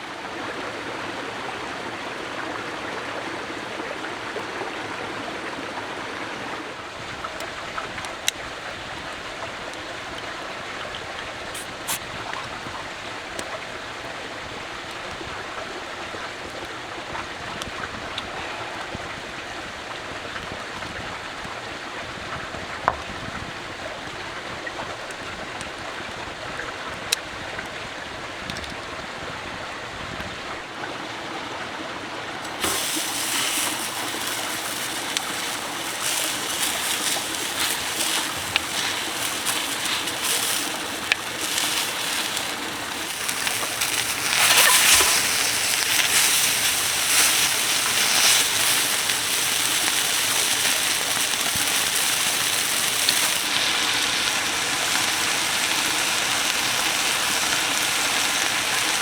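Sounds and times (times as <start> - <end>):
stream flowing: 0.0 - 15.0, 30.6 - 59.0.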